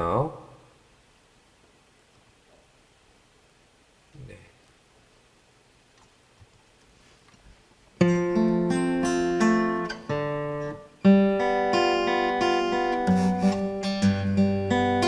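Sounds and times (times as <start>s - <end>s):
fingerpicked acoustic guitar: 8.0s - 15.0s.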